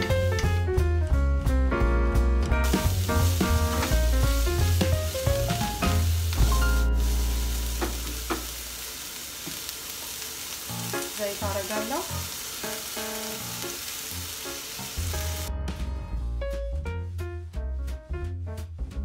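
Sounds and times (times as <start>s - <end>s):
soft background music: 0.0s - 8.3s, 10.7s - 19.0s
onion sizzling in frying pan: 2.6s - 15.5s.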